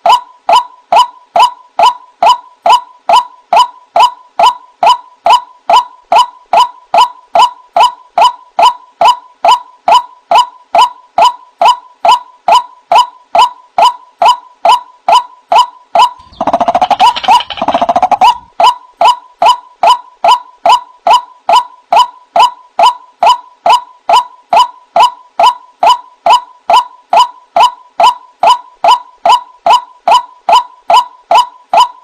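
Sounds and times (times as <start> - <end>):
waterhen calling: 16.2 - 18.5.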